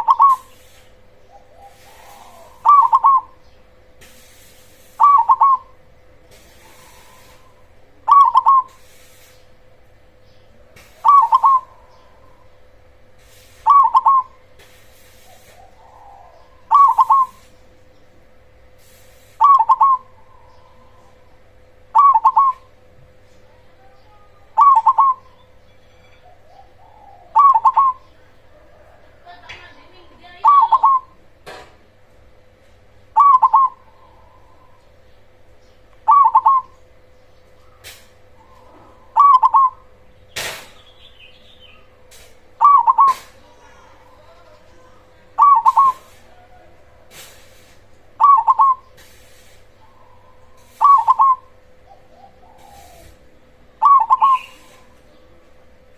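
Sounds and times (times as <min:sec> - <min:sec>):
dove cooing: 0:00.0 - 0:03.4, 0:04.8 - 0:09.2, 0:10.8 - 0:13.0, 0:13.6 - 0:14.4, 0:15.1 - 0:17.6, 0:19.2 - 0:25.6, 0:26.3 - 0:31.2, 0:33.1 - 0:35.2, 0:36.0 - 0:36.9, 0:37.6 - 0:40.0, 0:41.7 - 0:55.9
faint steady hum: 0:00.0 - 0:55.9.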